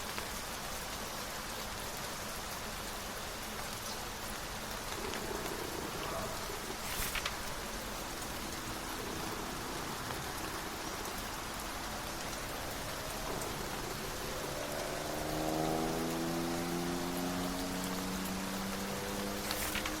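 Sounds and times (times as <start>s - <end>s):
steady rain hissing: 0.0s - 20.0s
brief crackling: 4.9s - 7.9s, 19.4s - 20.0s.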